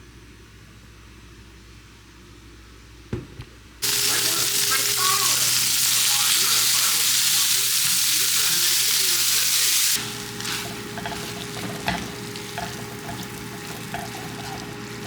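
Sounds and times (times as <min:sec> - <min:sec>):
food sizzling in a hot pan: 0:03.8 - 0:15.0
stirring sounds: 0:03.8 - 0:15.0.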